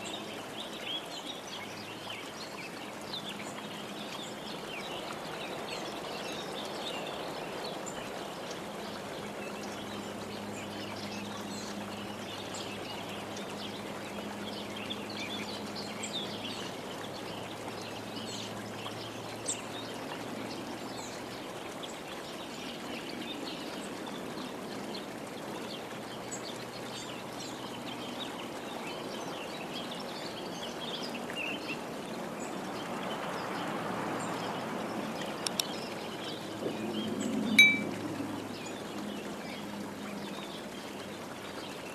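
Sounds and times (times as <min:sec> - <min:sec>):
small birds chirping: 0:37.1 - 0:41.9.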